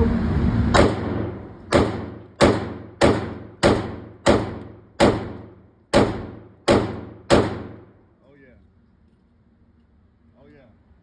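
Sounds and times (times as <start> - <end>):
handgun shots with ringing echo: 0.8 - 7.9.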